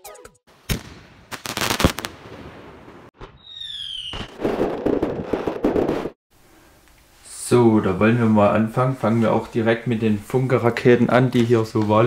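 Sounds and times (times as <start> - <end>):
firework bangs: 0.6 - 6.2
dense firework crackling: 0.7 - 6.2
firework whistle dropping in pitch: 3.3 - 4.4.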